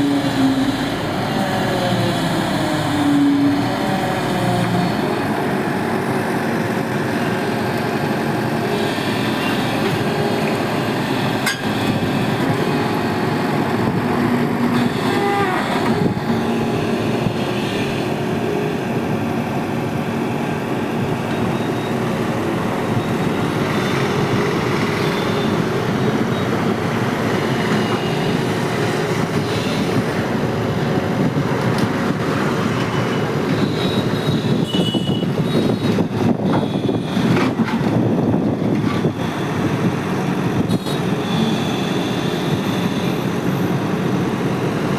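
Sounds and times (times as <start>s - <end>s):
excavator engine running: 0.0s - 34.7s.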